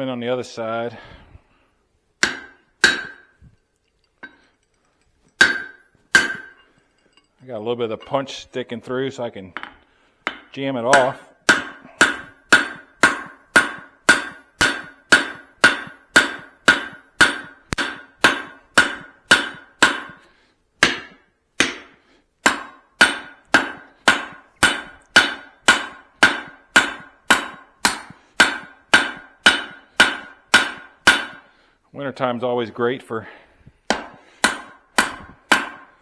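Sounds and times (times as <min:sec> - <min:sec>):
hammer striking steel on anvil: 0:02.2 - 0:03.6, 0:05.3 - 0:08.4, 0:09.6 - 0:31.5, 0:33.9 - 0:36.0.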